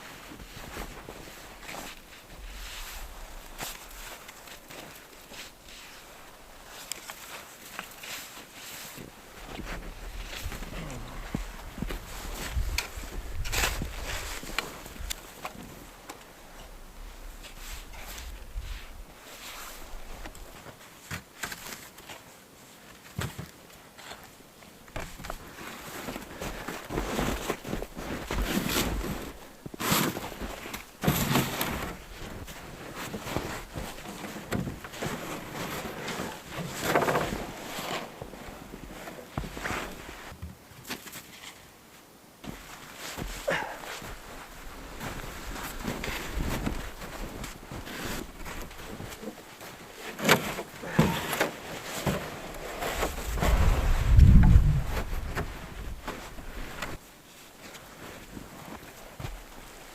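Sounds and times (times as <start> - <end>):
wind rumble on microphone: 9.8 - 14.3, 53.0 - 56.6
shovel scraping packed snow: 25.6 - 38.3, 45.0 - 49.0
shovel scraping snow: 26.8 - 32.0
low wind rumble: 53.0 - 56.8.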